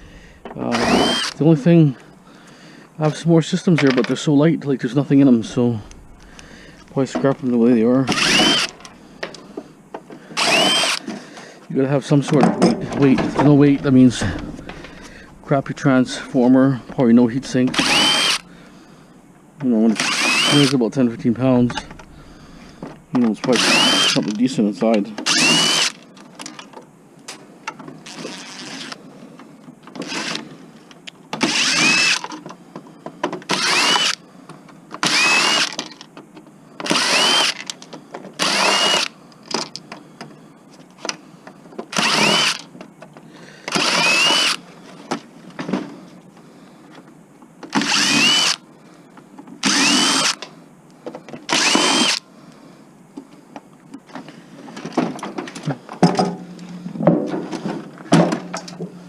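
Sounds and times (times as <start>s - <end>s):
cordless drill driving screws: 0.7s - 1.4s, 8.1s - 9.0s, 10.3s - 11.1s, 17.4s - 18.5s, 19.9s - 20.8s, 23.5s - 24.2s, 25.2s - 26.0s, 30.0s - 30.4s, 31.4s - 32.3s, 33.5s - 34.2s, 35.0s - 35.8s, 36.8s - 37.7s, 38.4s - 39.1s, 41.9s - 42.7s, 43.7s - 44.6s, 47.7s - 48.6s, 49.6s - 50.4s, 51.5s - 52.2s.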